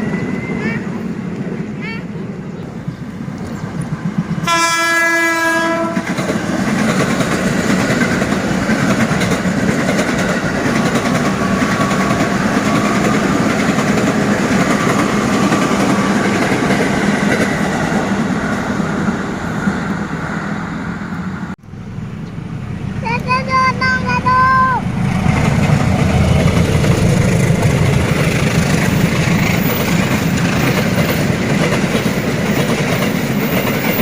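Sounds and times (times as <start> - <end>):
train rumbling past: 0.0 - 34.0
train horn: 4.4 - 6.2.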